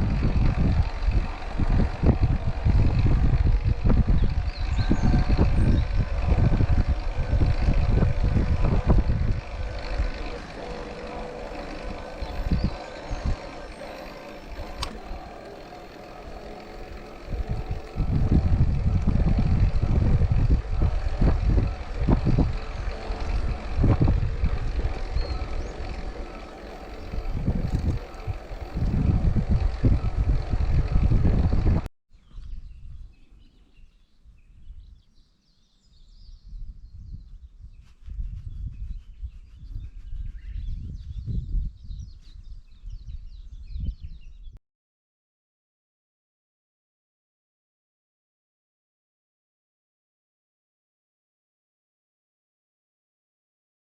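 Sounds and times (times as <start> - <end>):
road riding rushing noise: 0.0 - 31.9
wind buffeting microphone: 0.0 - 35.2, 35.8 - 44.6
birds chirping: 0.2 - 44.6.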